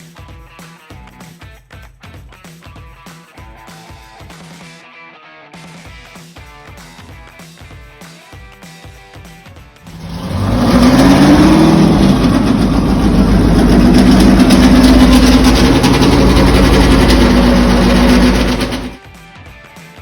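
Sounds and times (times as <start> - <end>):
tractor engine running: 9.9 - 19.0.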